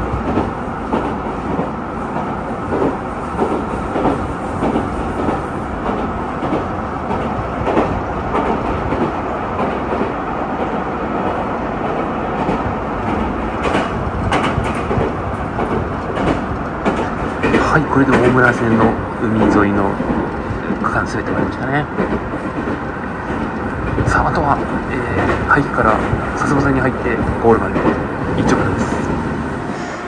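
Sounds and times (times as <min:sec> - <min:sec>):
train rolling rumble: 0:00.0 - 0:30.0
wheels clicking over rail joints: 0:11.9 - 0:21.0, 0:21.8 - 0:29.2.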